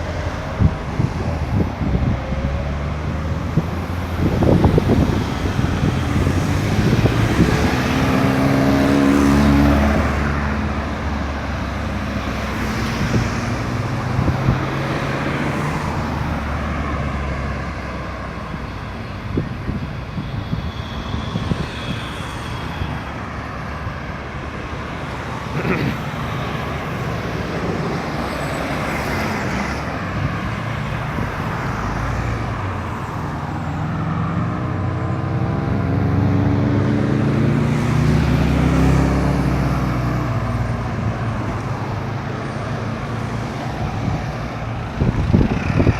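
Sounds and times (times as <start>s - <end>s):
cars driving past: 0.0s - 45.9s.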